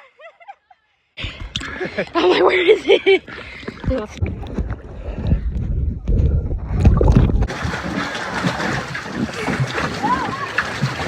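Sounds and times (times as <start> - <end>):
water sloshing and gurgling: 1.2 - 11.0
wind buffeting microphone: 3.0 - 10.9.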